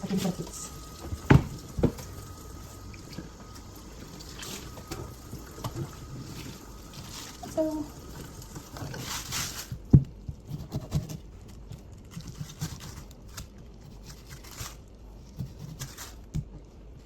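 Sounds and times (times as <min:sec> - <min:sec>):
kitchen knocks and clatter: 0:01.0 - 0:02.1.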